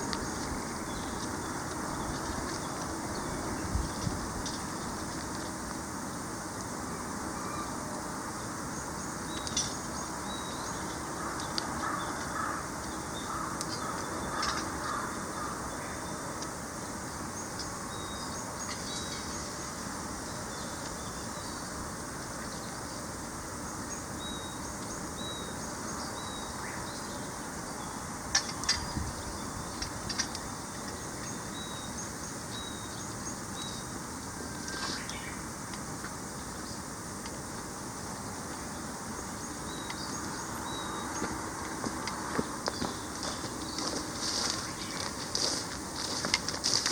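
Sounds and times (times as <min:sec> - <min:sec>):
steady hiss: 0:00.0 - 0:46.9
harsh low bird calls: 0:08.4 - 0:21.8.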